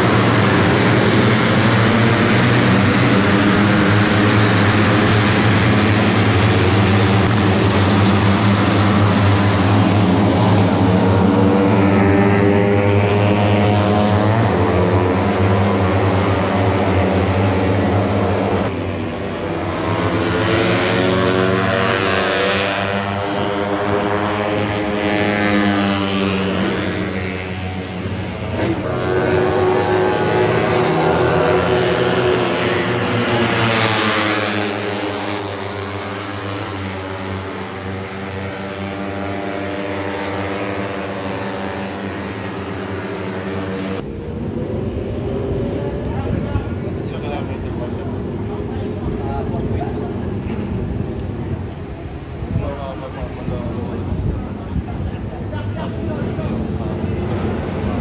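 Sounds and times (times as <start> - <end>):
loud rush: 0.0 - 58.0
motorcycle engines droning: 0.0 - 58.0.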